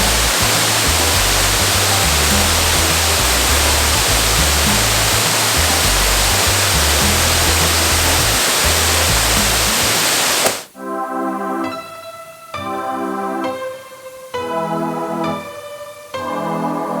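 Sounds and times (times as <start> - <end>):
low bass music notes: 0.0 - 10.2
waterfall rushing: 0.0 - 10.7
keyboard music: 0.0 - 17.0.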